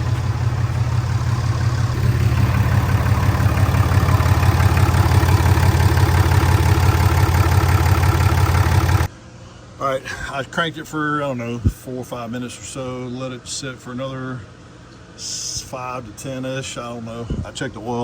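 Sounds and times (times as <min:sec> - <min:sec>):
diesel engine idling: 0:00.0 - 0:09.1.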